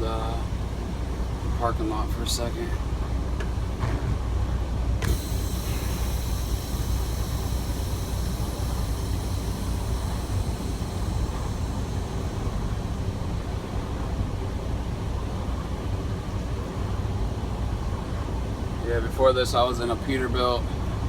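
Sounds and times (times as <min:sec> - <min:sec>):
truck diesel engine rumbling: 0:00.0 - 0:16.8.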